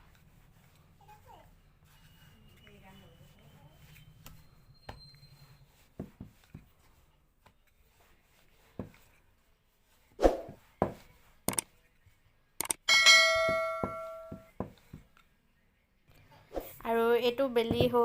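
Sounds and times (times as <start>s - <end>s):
rolling pin knocking on board: 13.3s - 15.0s, 17.6s - 18.0s.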